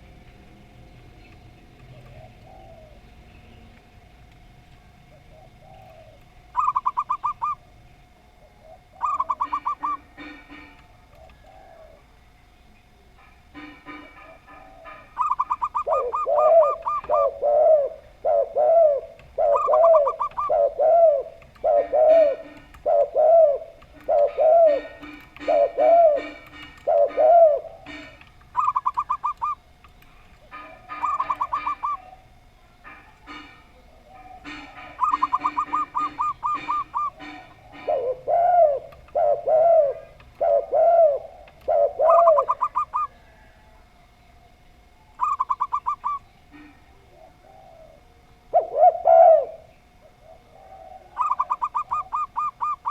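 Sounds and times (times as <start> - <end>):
dove low arched coos: 1.4 - 52.9
dove quick high coos: 5.3 - 7.6, 8.6 - 12.1, 13.6 - 29.6, 30.5 - 32.3, 32.9 - 43.8, 45.2 - 52.9.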